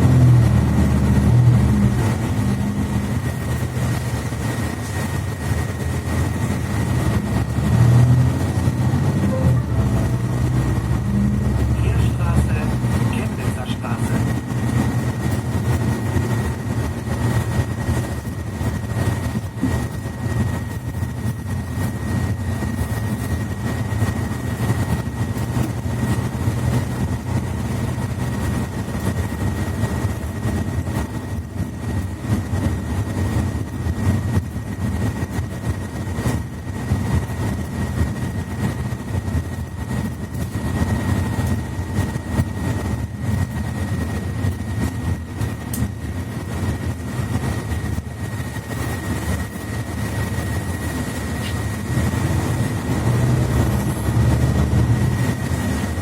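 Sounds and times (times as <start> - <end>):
bus diesel engine droning: 0.0 - 56.0
thin high whine: 9.1 - 14.5.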